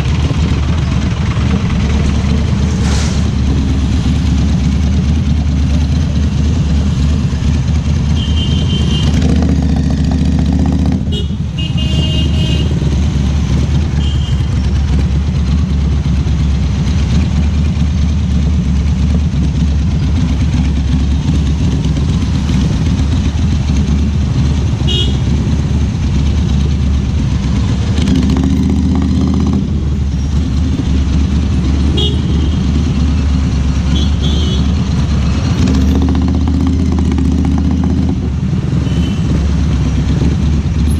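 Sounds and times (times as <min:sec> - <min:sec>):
motorcycle engine running: 0:00.0 - 0:40.9
car horn toots: 0:32.0 - 0:32.6.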